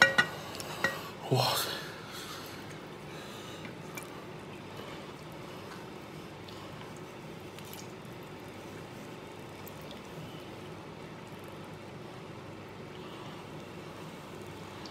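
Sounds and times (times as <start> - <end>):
low background noise: 0.0 - 14.9
soft wet squishes: 0.4 - 1.2, 1.9 - 14.9.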